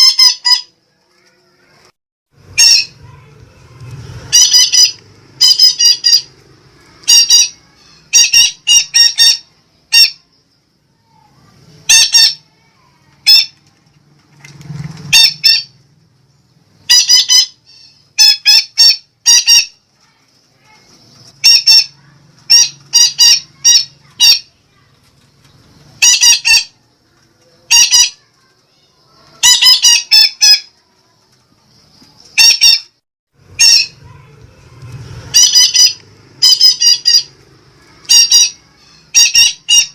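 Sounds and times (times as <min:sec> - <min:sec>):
parakeet squawking: 0:00.0 - 0:00.7, 0:02.4 - 0:03.3, 0:04.2 - 0:10.3, 0:11.8 - 0:12.6, 0:13.2 - 0:13.6, 0:15.1 - 0:15.7, 0:16.8 - 0:19.8, 0:21.4 - 0:24.6, 0:26.0 - 0:26.8, 0:27.6 - 0:28.3, 0:29.3 - 0:30.7, 0:32.3 - 0:34.3, 0:35.2 - 0:39.9.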